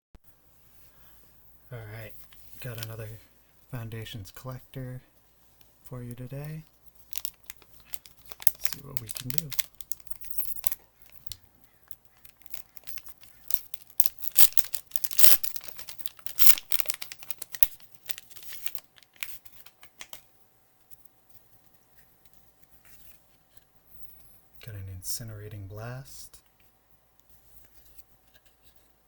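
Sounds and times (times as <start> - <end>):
wrapper crinkling and ripping: 7.0 - 20.2.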